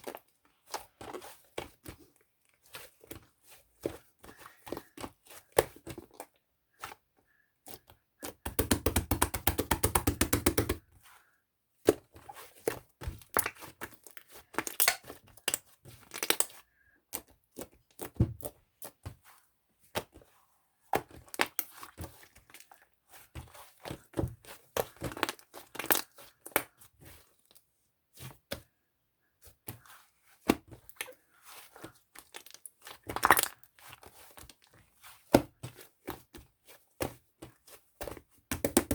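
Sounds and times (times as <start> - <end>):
clicks and taps from handled objects: 7.6 - 10.8.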